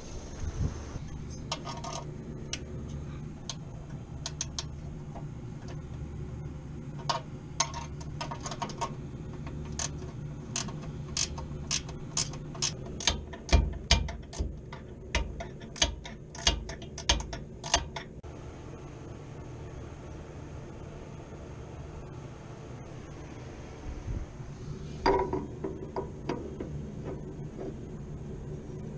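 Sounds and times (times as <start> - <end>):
steady low hum: 0.0 - 28.9
metal knocks: 7.0 - 18.2, 25.0 - 27.9
ratchet wrench clicking: 9.5 - 18.1.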